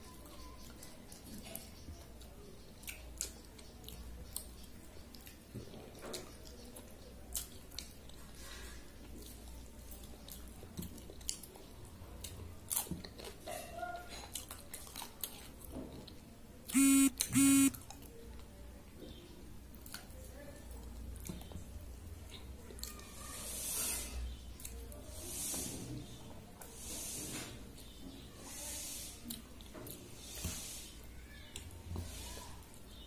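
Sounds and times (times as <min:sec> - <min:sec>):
chewing and mouth clicks: 0:00.6 - 0:08.2, 0:10.0 - 0:16.2
buzzy electronic beeps: 0:16.8 - 0:17.7.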